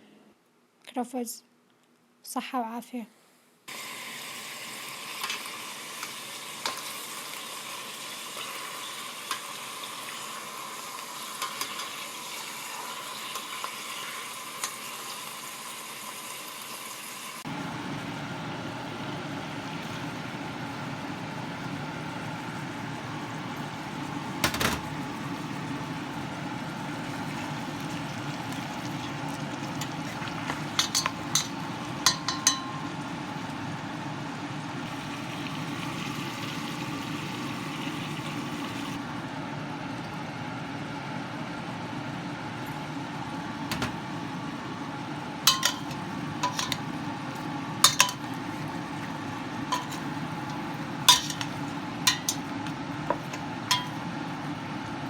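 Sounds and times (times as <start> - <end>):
cutlery clinking on a plate: 30.5 - 32.8, 45.5 - 46.8, 47.9 - 48.3, 49.8 - 50.1, 51.1 - 51.5, 53.1 - 54.0.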